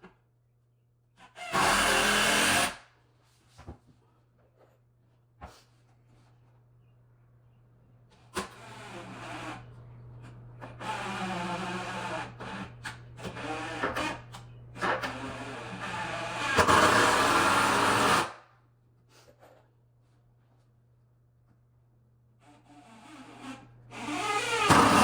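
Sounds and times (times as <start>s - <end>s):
power tool motor running: 14.9s - 18.4s, 23.2s - 25.0s.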